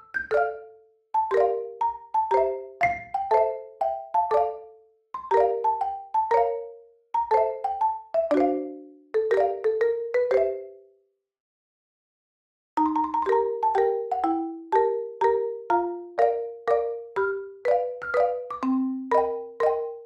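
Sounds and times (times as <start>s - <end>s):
marimba tune: 0.0s - 10.8s, 12.8s - 20.0s.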